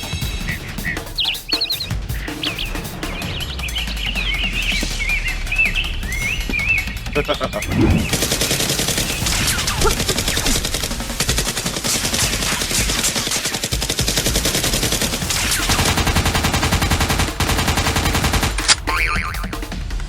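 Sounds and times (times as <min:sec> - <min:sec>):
rapid automatic gunfire: 0:07.8 - 0:18.8.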